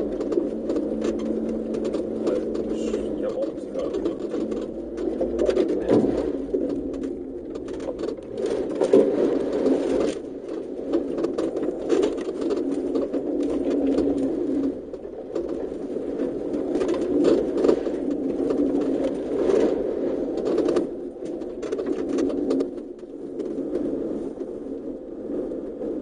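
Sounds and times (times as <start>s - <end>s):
engine droning in cabin: 0.0s - 9.1s
knocks and rattles from bumps: 0.0s - 19.6s.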